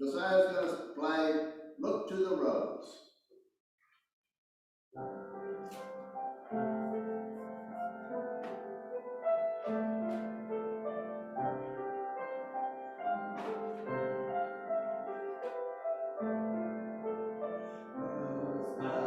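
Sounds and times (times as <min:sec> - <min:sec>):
piano playing slow chords: 0:05.0 - 0:19.0.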